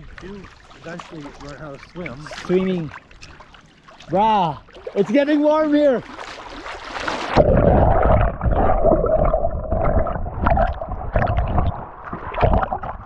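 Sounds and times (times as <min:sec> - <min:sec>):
muffled water sloshing and gurgling: 0:00.0 - 0:13.0.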